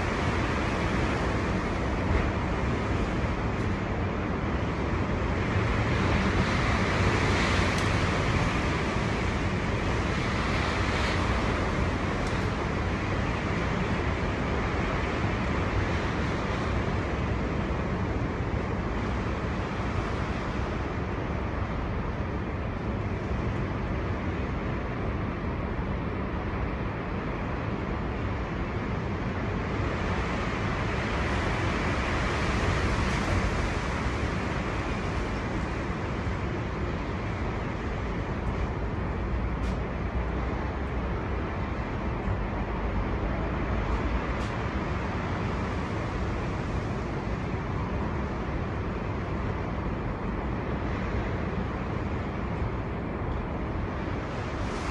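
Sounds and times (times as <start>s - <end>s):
storm wind blowing hard: 0.0s - 54.9s.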